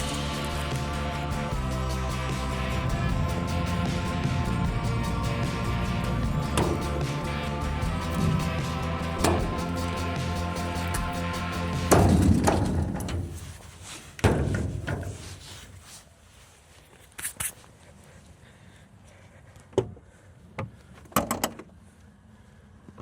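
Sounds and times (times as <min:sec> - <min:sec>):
heavy door slamming: 0:09.2 - 0:09.8.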